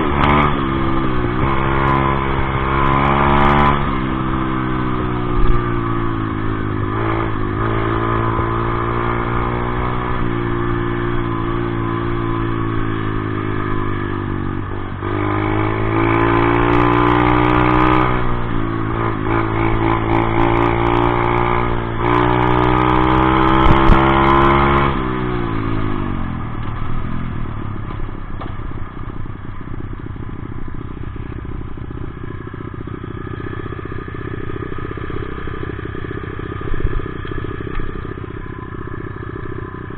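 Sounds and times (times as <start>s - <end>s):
dirt bike engine revving: 0.0s - 26.3s.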